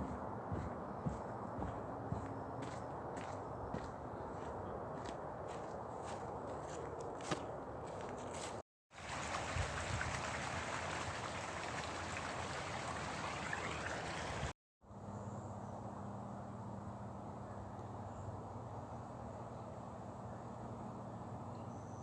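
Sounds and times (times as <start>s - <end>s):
running water rushing: 8.9s - 14.5s.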